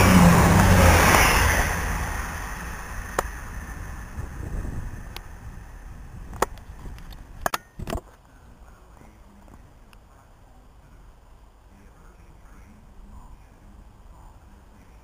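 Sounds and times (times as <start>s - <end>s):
train rumbling past: 0.0s - 7.4s.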